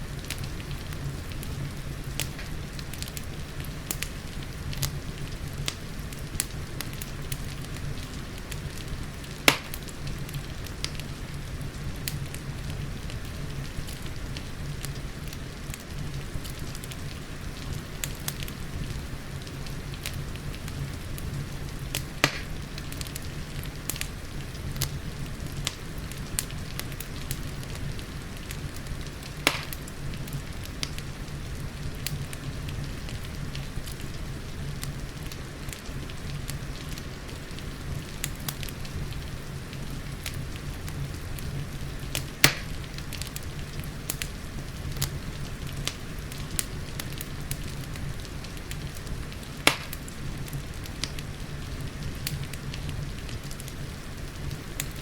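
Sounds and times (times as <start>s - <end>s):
rain hiss: 0.0s - 55.0s
wood fire crackling: 0.0s - 55.0s.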